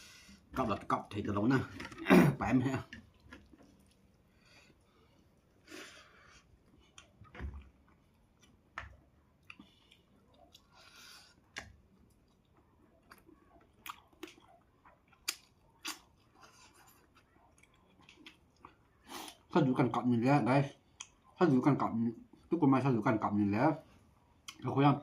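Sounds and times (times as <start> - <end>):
person chewing food: 2.8 - 19.5, 20.8 - 21.4.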